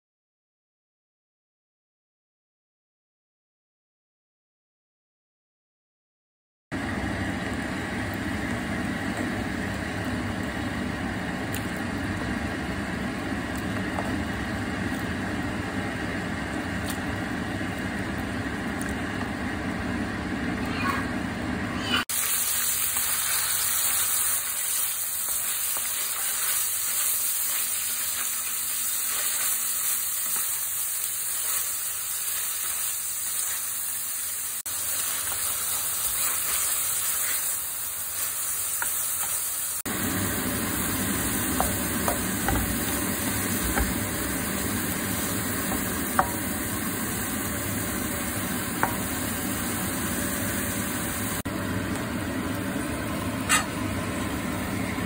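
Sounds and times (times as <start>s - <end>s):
meat sizzling in hot oil: 22.0s - 54.8s.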